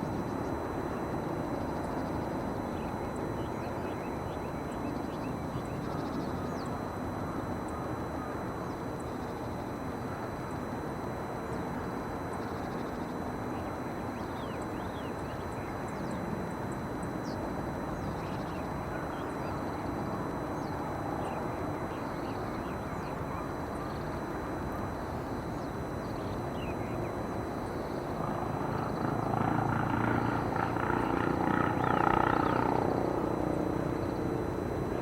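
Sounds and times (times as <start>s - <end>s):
outdoor background rumble: 25.0s - 35.0s
engine drone passing: 27.7s - 35.0s.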